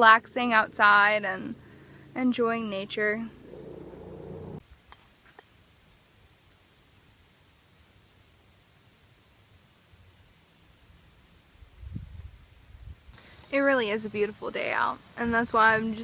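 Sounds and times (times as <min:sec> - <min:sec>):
insects trilling: 0:00.0 - 0:04.9.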